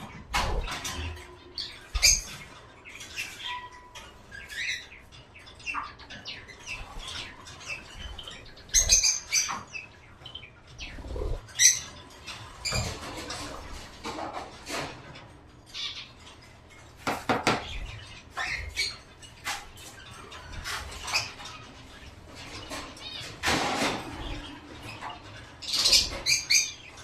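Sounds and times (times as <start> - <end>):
bird chirps: 0.0 - 27.0
birds scratching in cage: 10.6 - 27.0.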